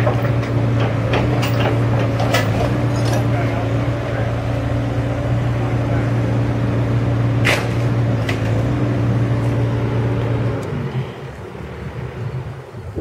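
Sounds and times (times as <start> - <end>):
heavy machine engine running: 0.0 - 13.0.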